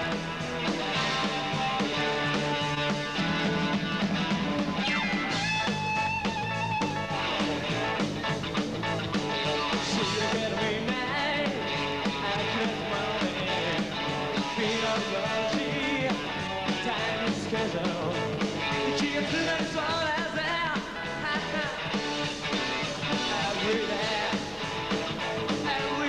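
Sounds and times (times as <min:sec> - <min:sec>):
drums: 0:00.0 - 0:26.0
electric guitars: 0:00.0 - 0:26.0
person singing: 0:09.5 - 0:24.6, 0:25.4 - 0:26.0.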